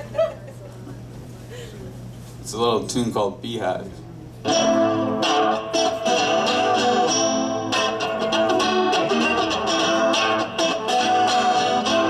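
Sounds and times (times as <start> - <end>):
strummed rock guitar: 4.5 - 12.0.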